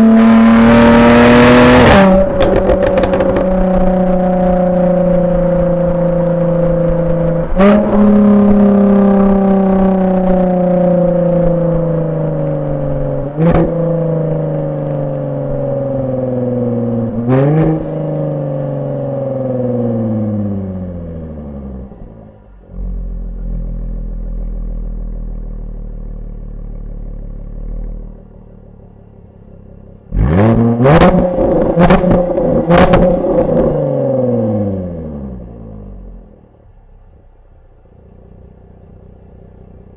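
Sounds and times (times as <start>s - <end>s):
car engine revving: 0.0s - 39.9s
exhaust pops: 1.8s - 4.2s.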